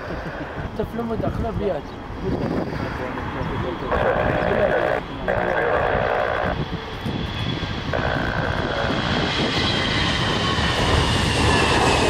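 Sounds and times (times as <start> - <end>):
jet engines roaring with whine: 0.0 - 12.0.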